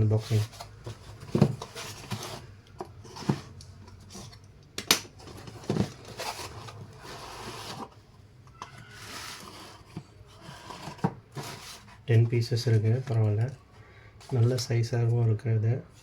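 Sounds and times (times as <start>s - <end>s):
packaging rustling: 5.1s - 8.0s.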